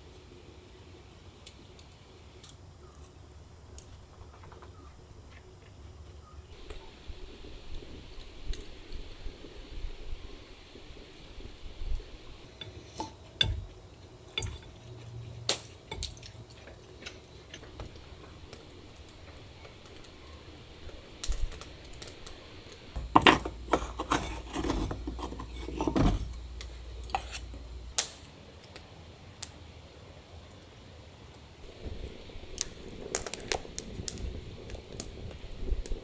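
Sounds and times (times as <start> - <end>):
small hard objects clattering: 21.2 - 28.1, 31.6 - 35.4.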